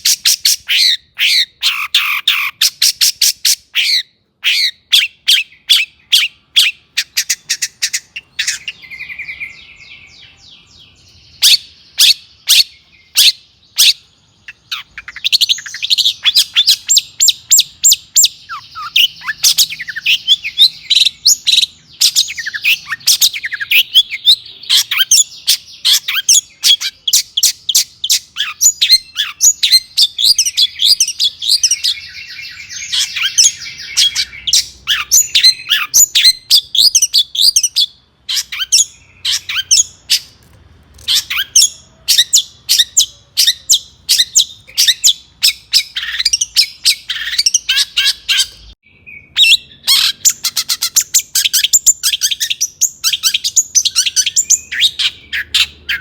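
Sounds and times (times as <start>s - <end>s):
bird singing harsh chattering notes: 0.0s - 40.4s, 41.0s - 56.0s
buzzy rattling bird phrase: 0.0s - 40.4s.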